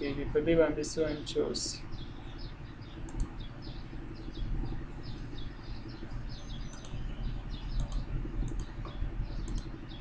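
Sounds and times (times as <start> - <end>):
small birds chirping: 0.0 - 10.0
steady low hum: 0.0 - 10.0
computer mouse clicks: 3.0 - 3.4, 6.7 - 7.0, 7.7 - 9.7.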